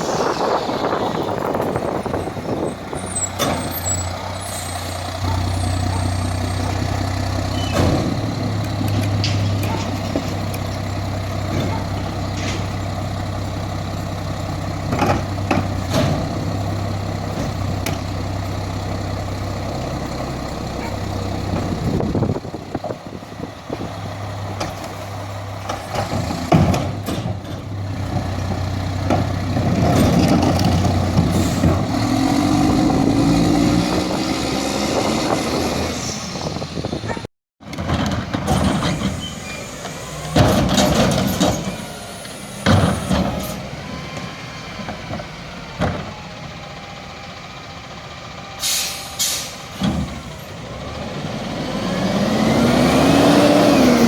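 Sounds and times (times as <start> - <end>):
garbage truck engine revving: 0.0 - 47.1, 48.2 - 54.0
air brake hisses: 48.6 - 49.8.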